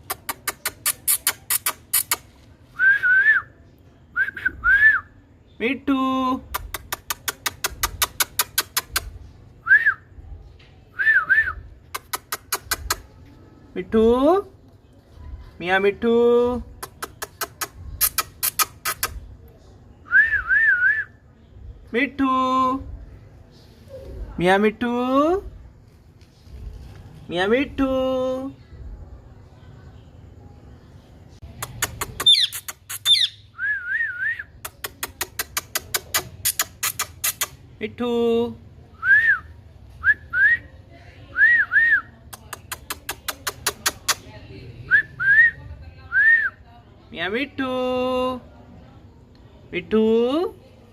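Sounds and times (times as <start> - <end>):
parrot rapid sharp clicks: 6.6 - 9.1, 12.0 - 13.0, 31.6 - 33.3, 34.7 - 37.5
parakeet squawks: 32.0 - 33.5
parakeet wavering whistle: 32.2 - 33.5.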